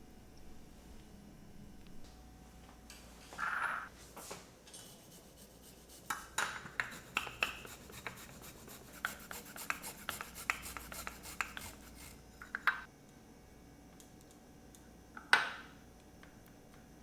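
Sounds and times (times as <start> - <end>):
quick irregular scraping: 4.8 - 12.2.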